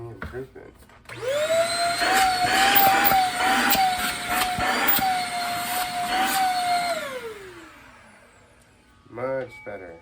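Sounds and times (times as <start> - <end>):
stick vacuum motor whine: 1.1 - 10.0.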